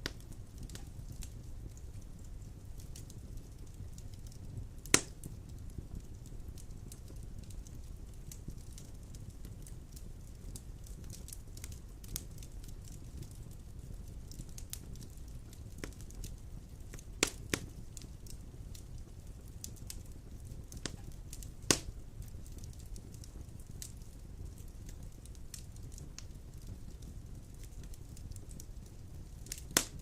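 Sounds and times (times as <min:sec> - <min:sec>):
wood fire burning: 0:00.0 - 0:30.0
loud sharp fire pops: 0:04.8 - 0:05.4, 0:16.9 - 0:17.7, 0:20.8 - 0:22.8, 0:29.4 - 0:30.0.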